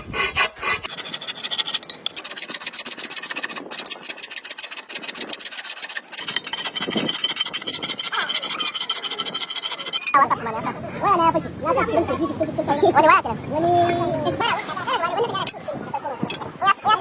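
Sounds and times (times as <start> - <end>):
fast rasping scrape: 0.0 - 10.2.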